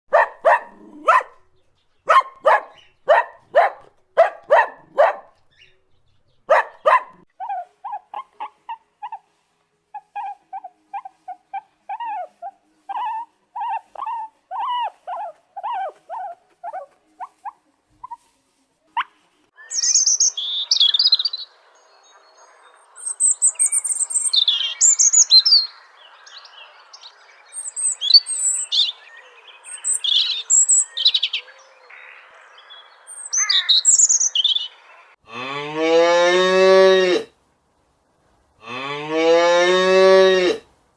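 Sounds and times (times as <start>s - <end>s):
dog barking: 0.1s - 5.4s, 6.5s - 8.5s
birds twittering: 0.1s - 7.2s, 19.6s - 35.2s.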